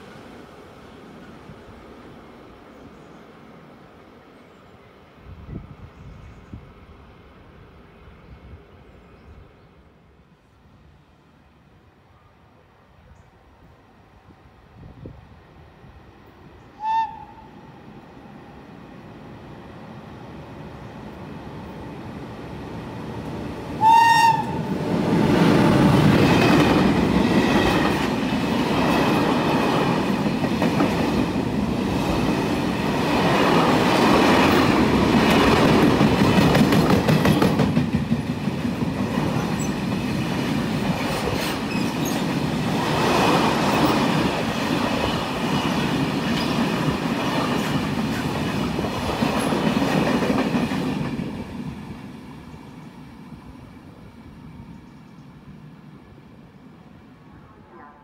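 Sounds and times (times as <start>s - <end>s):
train wheels rushing on rail: 15.8s - 56.8s
train horn blast: 16.8s - 17.6s, 23.8s - 25.9s, 57.3s - 58.0s.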